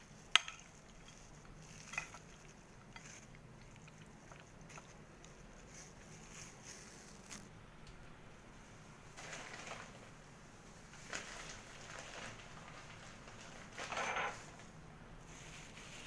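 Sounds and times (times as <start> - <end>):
low background hiss: 0.0 - 16.0
utensil tapping frying pan: 0.2 - 3.2.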